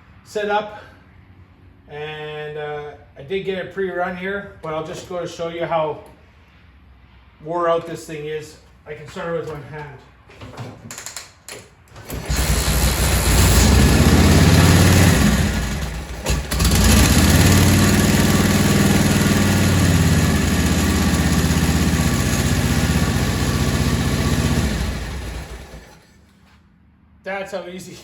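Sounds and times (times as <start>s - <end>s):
kick starter: 11.9s - 26.1s
motorcycle engine running: 12.1s - 26.0s.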